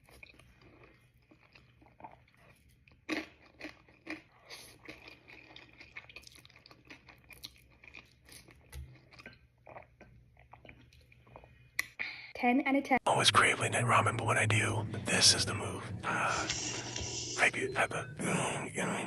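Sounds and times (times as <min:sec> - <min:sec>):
chewing and crunching: 0:00.0 - 0:11.8.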